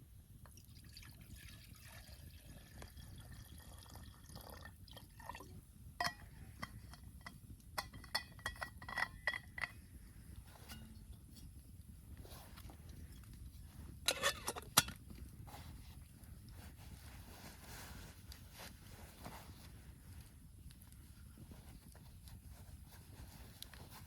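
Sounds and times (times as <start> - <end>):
liquid trickling: 0.6 - 5.5
light clinks and taps: 6.0 - 9.9.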